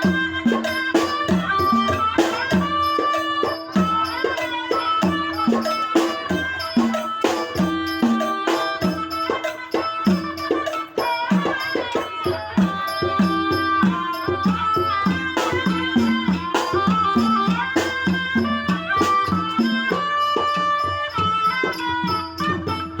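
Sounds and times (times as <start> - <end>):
sharp clicking percussion: 0.0 - 23.0.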